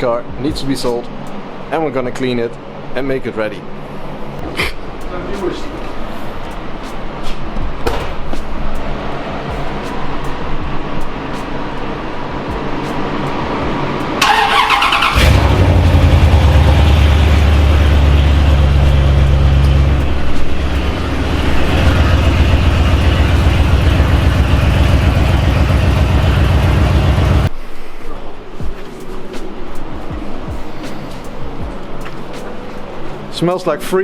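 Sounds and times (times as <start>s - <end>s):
car engine starting and running: 13.2s - 27.5s.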